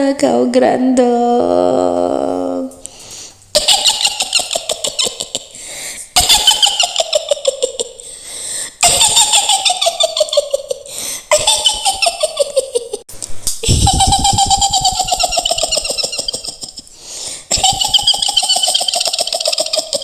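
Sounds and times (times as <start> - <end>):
high-pitched cackling laugh: 3.5 - 5.6, 6.2 - 8.0, 8.8 - 13.0, 13.6 - 16.9, 17.5 - 20.0.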